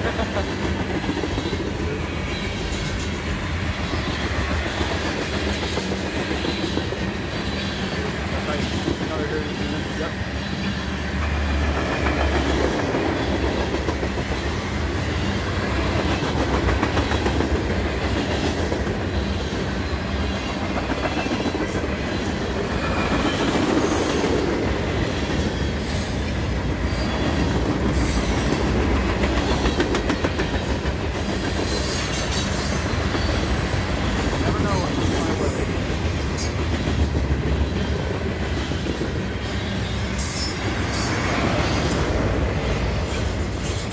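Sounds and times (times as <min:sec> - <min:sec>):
freight train wheels rumbling: 0:00.0 - 0:43.9
high wheel squeals: 0:25.4 - 0:28.5.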